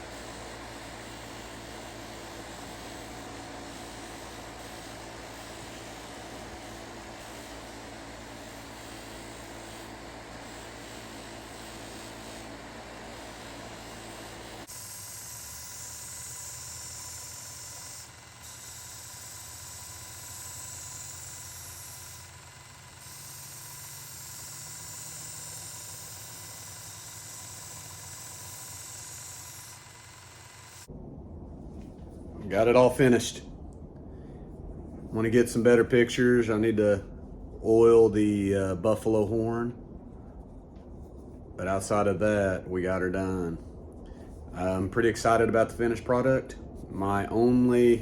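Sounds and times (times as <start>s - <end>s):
abrasive grinding hiss: 0.0s - 30.9s
belt grinder running: 0.0s - 30.9s.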